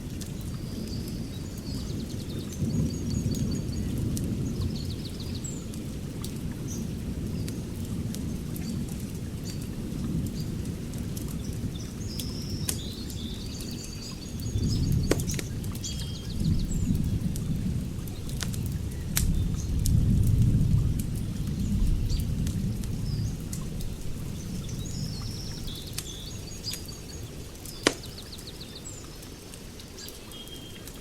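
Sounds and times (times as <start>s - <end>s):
birds chirping: 11.4s - 19.8s, 21.3s - 31.0s
wood fire crackling and popping: 14.4s - 15.9s, 17.1s - 24.3s, 25.8s - 28.5s.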